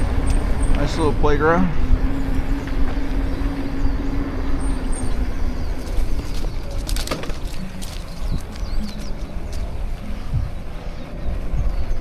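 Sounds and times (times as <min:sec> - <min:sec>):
bicycle road rumble: 0:00.0 - 0:12.0
low motor hum: 0:00.0 - 0:12.0
wind buffeting microphone: 0:00.0 - 0:12.0
sharp rattles: 0:05.8 - 0:09.1.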